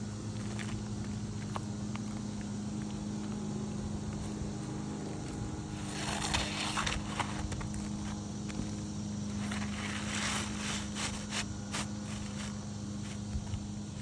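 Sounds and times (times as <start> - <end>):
low hum: 0.0 - 14.0
roof shingles scraping and crackling: 5.7 - 14.0.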